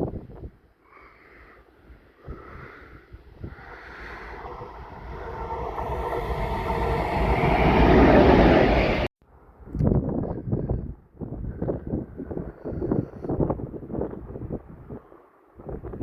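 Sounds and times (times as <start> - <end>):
rail rumble: 3.2 - 9.1
diesel locomotive engine drone: 3.4 - 9.1.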